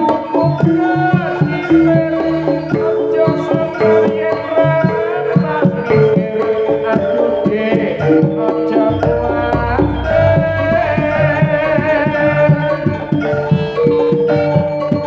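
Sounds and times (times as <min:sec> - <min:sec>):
hand drums beating: 0:00.0 - 0:15.0
sustained melodic notes: 0:06.0 - 0:15.0
deep low tone: 0:09.0 - 0:13.5.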